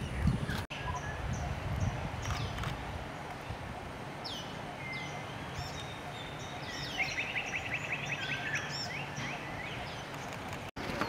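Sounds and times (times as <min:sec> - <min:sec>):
small birds whistling: 0:04.2 - 0:10.4.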